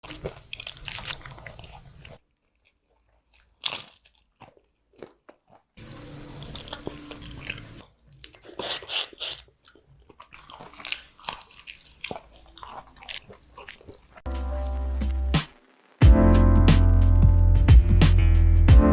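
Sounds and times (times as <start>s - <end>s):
crunchy bites and chewing: 0.0s - 14.2s
music: 5.8s - 7.8s, 14.3s - 18.9s.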